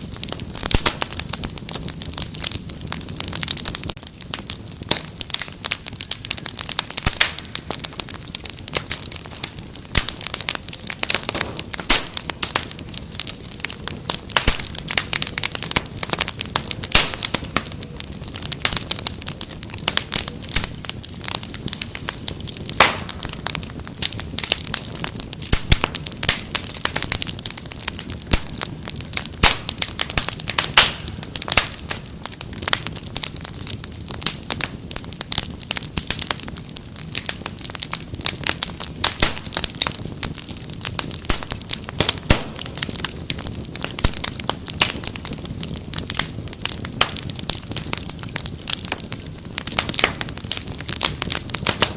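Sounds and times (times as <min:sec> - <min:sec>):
wood fire crackling: 0:00.0 - 0:51.9
sharp pops: 0:22.8 - 0:23.2, 0:42.2 - 0:42.6.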